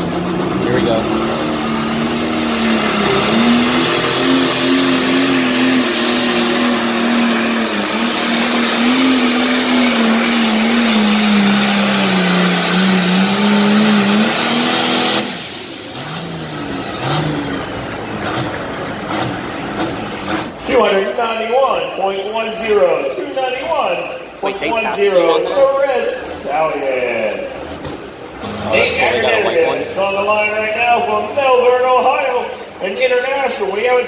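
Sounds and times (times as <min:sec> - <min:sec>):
high whine: 0:00.0 - 0:18.1
tractor engine at full throttle: 0:00.0 - 0:21.1, 0:27.4 - 0:31.8.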